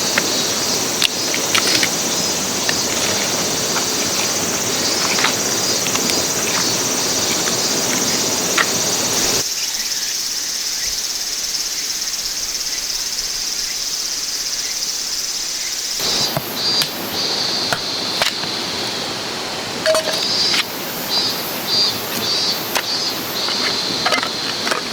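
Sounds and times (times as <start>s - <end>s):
stream rushing: 0.0s - 9.4s, 16.0s - 24.9s
high-pitched insect chorus: 0.0s - 24.9s.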